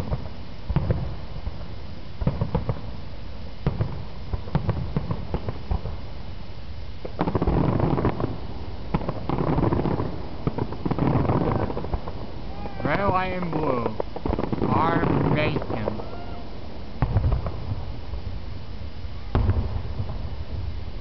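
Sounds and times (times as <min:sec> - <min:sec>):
fireworks bursting: 0:00.0 - 0:21.0.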